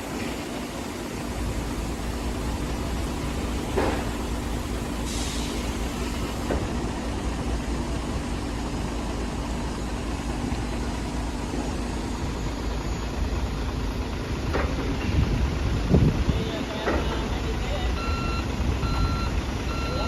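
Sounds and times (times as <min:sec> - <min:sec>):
electric forklift humming: 0:00.0 - 0:20.0.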